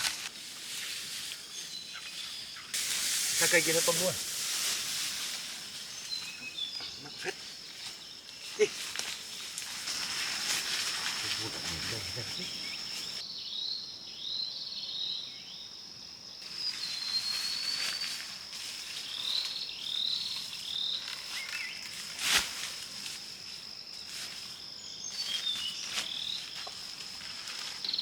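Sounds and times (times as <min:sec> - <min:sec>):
insects droning: 0:00.0 - 0:28.0
animals chirping: 0:05.8 - 0:09.5, 0:11.0 - 0:13.2.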